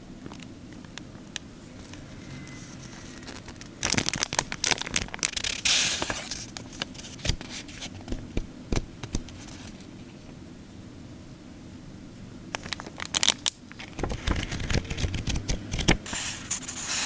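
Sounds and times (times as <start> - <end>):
plastic and paper packaging crinkling: 2.6 - 8.0, 12.6 - 17.0.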